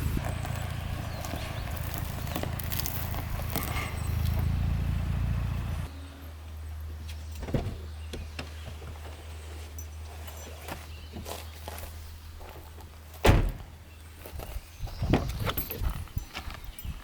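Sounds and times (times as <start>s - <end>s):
pickup truck engine rumbling: 0.0s - 7.0s
road noise: 0.0s - 16.9s.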